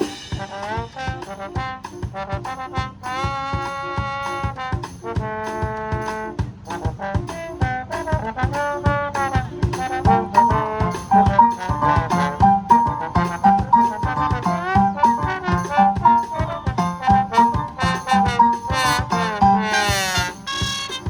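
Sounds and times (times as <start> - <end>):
steady drum beat: 0.0 - 21.0
brass holding long chords: 9.2 - 21.0.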